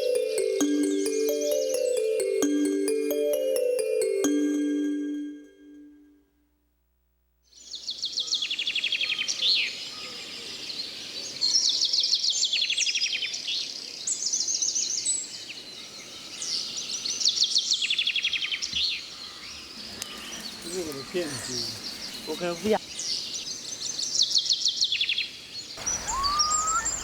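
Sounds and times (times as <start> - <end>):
steady background hiss: 25.2 - 27.0
bird singing high notes: 25.8 - 27.0.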